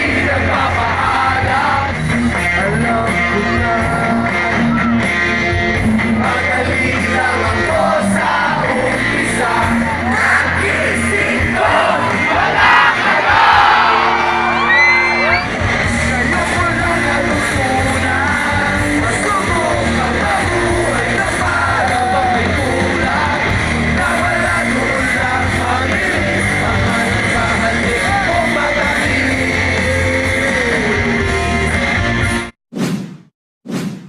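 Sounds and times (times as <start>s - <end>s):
rock band playing: 0.0s - 32.5s
person singing: 16.0s - 31.6s.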